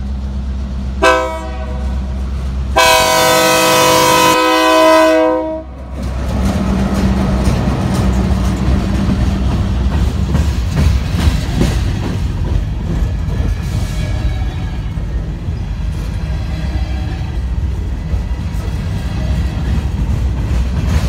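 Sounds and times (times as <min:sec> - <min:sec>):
train wheels rumbling on rail: 0:00.0 - 0:21.0
train horn chord: 0:01.0 - 0:01.9, 0:02.8 - 0:05.8.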